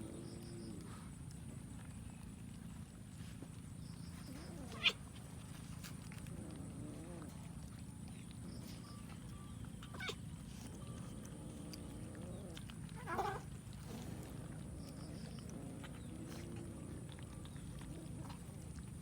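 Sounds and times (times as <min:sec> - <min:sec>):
low background hum: 0:00.0 - 0:19.0
cat meowing: 0:04.6 - 0:05.0, 0:09.9 - 0:10.2, 0:13.0 - 0:13.5.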